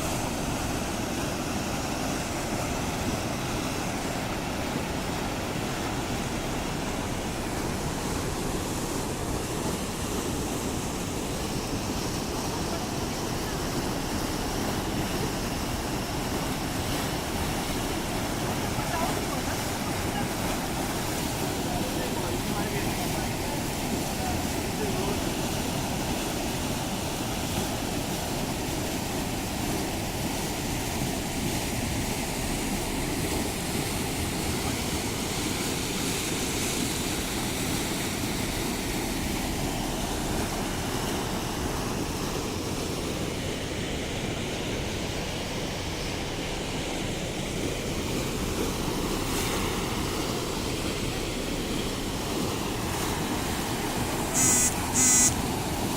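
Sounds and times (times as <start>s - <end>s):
short sharp high-pitched sound: 54.4s - 55.4s.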